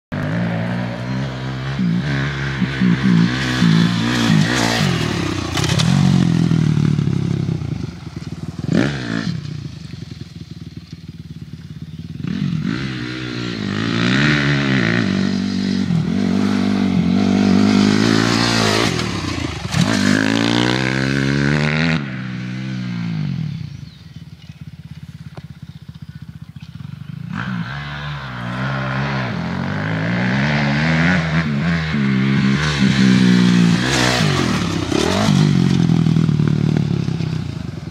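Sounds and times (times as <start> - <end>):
dirt bike engine revving: 0.1 - 37.9.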